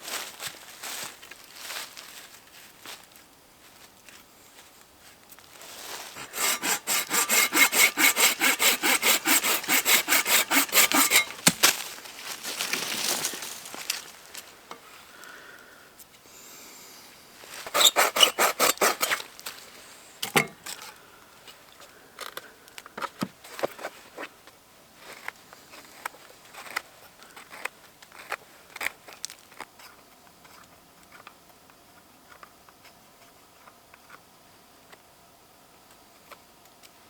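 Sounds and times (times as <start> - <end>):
rasping saw strokes on wood: 6.2 - 11.6, 17.7 - 19.3.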